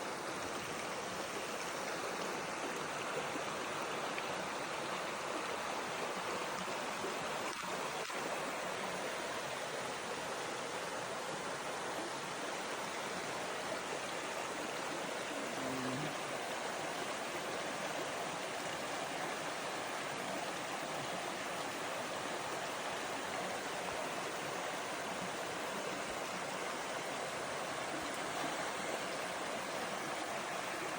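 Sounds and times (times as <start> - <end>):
waterfall and stream flowing: 0.0 - 30.9.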